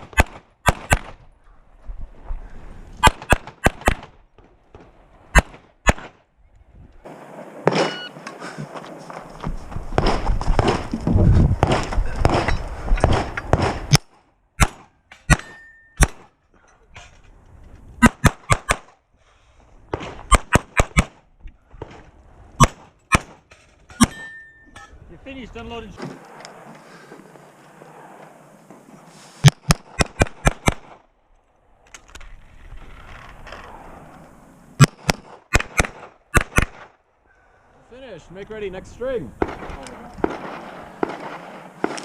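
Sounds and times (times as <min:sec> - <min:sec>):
pistol shots: 0:00.0 - 0:01.2, 0:03.0 - 0:04.1, 0:05.3 - 0:06.2, 0:07.6 - 0:08.1, 0:11.6 - 0:16.3, 0:29.4 - 0:31.0, 0:34.8 - 0:36.9, 0:39.4 - 0:42.0
rustling noise: 0:06.9 - 0:13.9.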